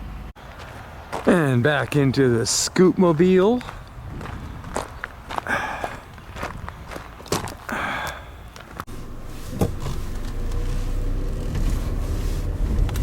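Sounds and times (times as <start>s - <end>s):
car engine starting and running: 8.9s - 13.0s
car door thud: 9.5s - 10.0s.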